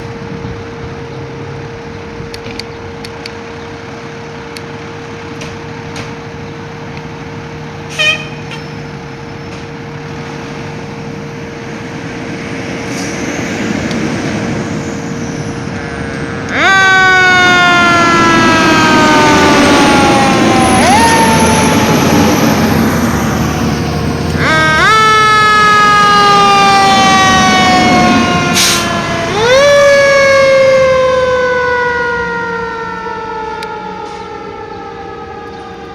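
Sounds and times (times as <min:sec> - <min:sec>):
fire truck siren: 0:00.0 - 0:35.9
vehicle engine noise: 0:00.0 - 0:35.9
vehicle horn blast: 0:07.9 - 0:08.9.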